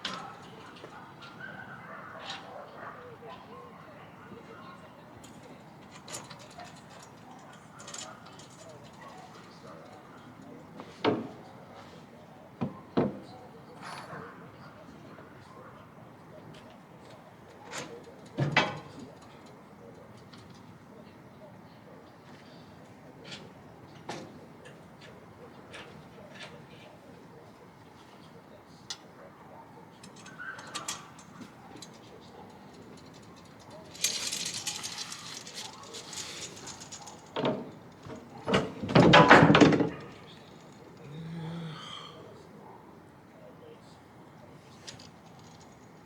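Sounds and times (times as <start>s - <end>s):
metal frame rattling: 30.0s - 40.8s.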